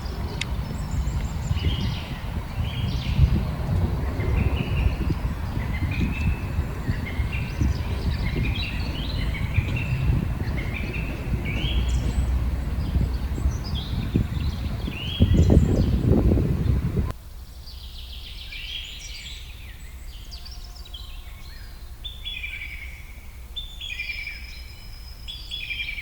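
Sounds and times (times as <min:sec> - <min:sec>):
birds calling: 0:00.0 - 0:17.1
steady low rumble: 0:00.0 - 0:17.2.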